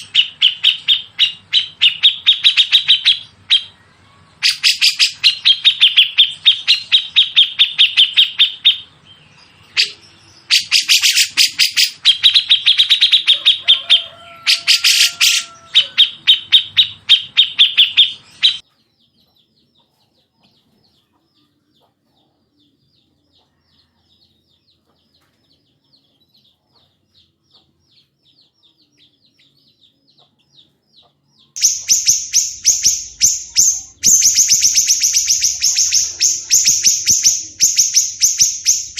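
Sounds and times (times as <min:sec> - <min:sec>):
songbird harsh rapid calls: 0:00.0 - 0:03.8, 0:04.4 - 0:08.9, 0:09.7 - 0:18.6, 0:31.6 - 0:38.9.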